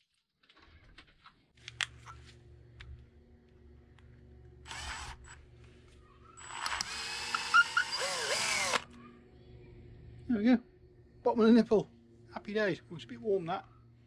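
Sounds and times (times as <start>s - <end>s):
power drill drilling metal: 4.7s - 5.4s, 6.4s - 8.9s.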